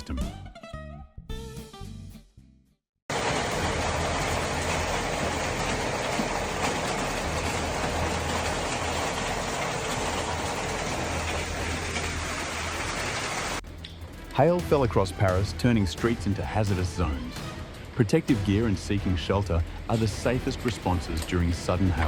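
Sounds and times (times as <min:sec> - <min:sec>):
hail falling on streets: 0:03.1 - 0:13.6.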